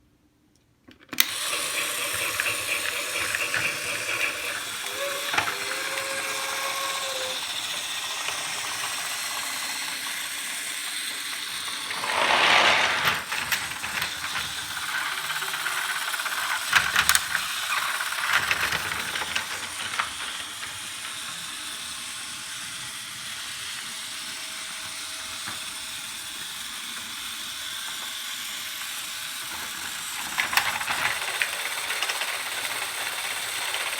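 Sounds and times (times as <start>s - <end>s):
toy train motor whirring: 1.2s - 33.9s
rushing burst: 11.8s - 13.4s.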